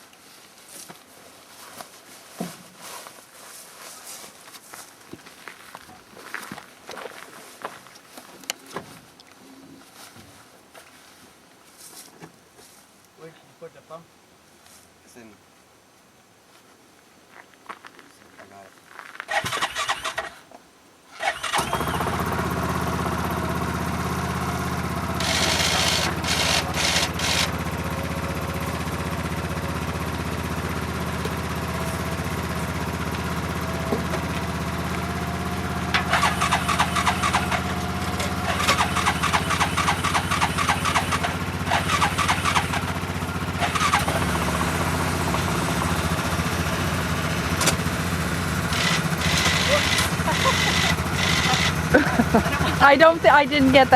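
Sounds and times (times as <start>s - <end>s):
atv engine running: 19.3s - 20.3s, 21.2s - 53.9s
rattling clattery noise: 19.3s - 20.3s, 25.0s - 28.0s, 35.8s - 46.7s, 47.3s - 53.9s.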